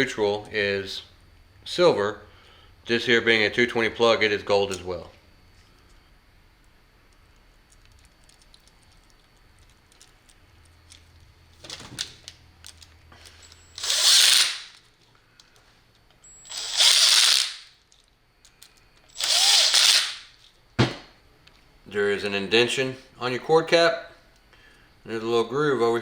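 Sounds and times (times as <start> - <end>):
cordless drill driving screws: 13.7 - 14.7, 16.4 - 17.6, 19.1 - 20.2.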